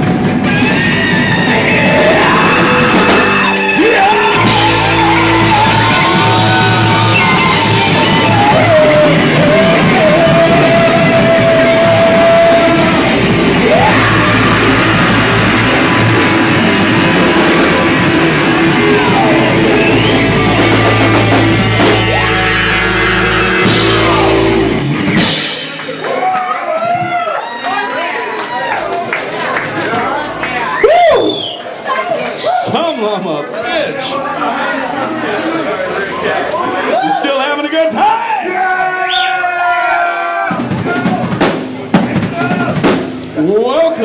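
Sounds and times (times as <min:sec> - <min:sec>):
electric guitar lead: 0:00.0 - 0:26.1
bass guitar: 0:00.0 - 0:26.2
drums: 0:00.0 - 0:32.9, 0:37.9 - 0:44.0.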